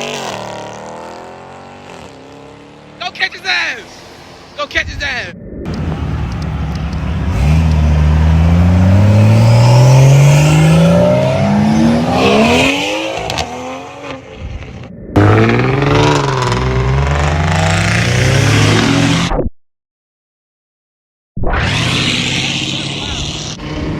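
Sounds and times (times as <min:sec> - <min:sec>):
car engine accelerating hard: 0:05.7 - 0:19.3
engine revving up and down: 0:07.2 - 0:19.4, 0:21.4 - 0:23.9.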